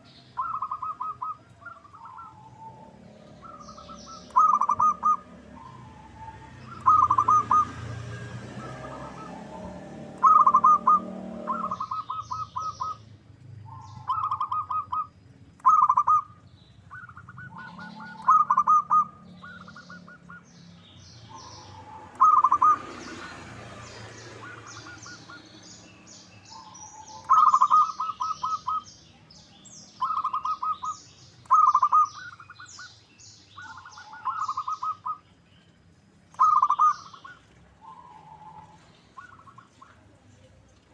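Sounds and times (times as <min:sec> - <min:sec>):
dove cooing: 0:00.0 - 0:13.0, 0:13.7 - 0:20.5, 0:21.3 - 0:25.6, 0:26.5 - 0:28.9, 0:30.0 - 0:32.6, 0:33.6 - 0:35.2, 0:36.3 - 0:40.0
small birds chirping: 0:00.0 - 0:40.9.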